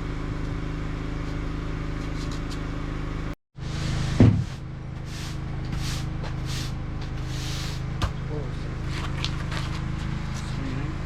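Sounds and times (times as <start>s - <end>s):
mechanical hum: 0.0s - 11.0s
short hissing scrapes: 5.0s - 7.9s.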